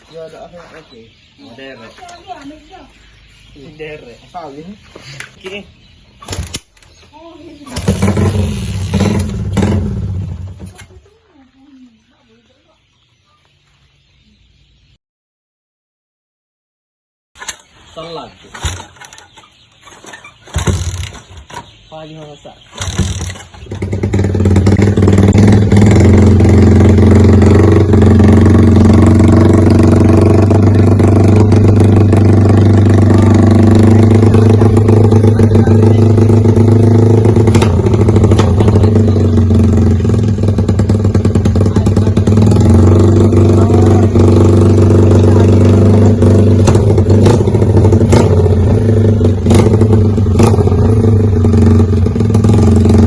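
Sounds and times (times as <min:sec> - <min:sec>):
motorcycle engine running: 0:07.5 - 0:10.9, 0:22.8 - 0:53.0.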